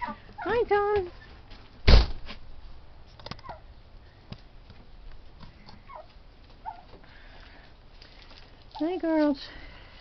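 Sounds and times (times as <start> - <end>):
poultry calls: 5.7 - 7.0.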